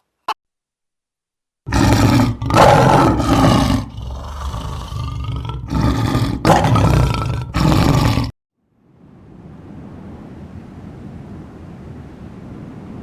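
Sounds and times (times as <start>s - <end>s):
big cat roaring: 1.7s - 8.3s.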